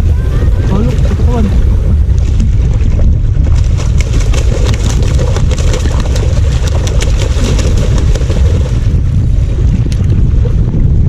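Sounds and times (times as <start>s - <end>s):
wind buffeting microphone: 0.0s - 11.0s
rapid clicks and rattles: 3.5s - 8.8s.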